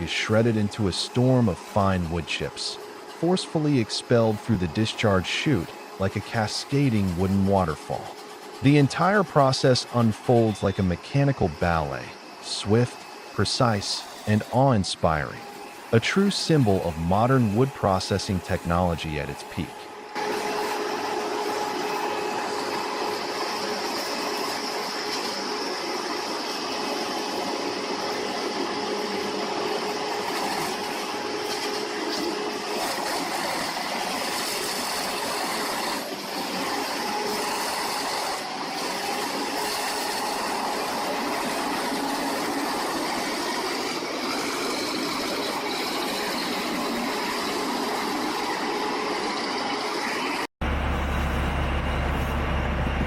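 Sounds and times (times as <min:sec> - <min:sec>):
wood chipper running: 0:00.0 - 0:53.0.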